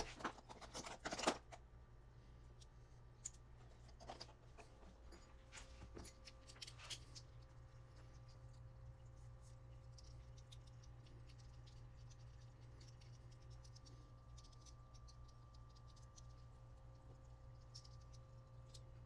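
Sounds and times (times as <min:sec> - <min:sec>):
steady low hum: 0:00.0 - 0:19.0
small parts clicking by hand: 0:17.5 - 0:19.0.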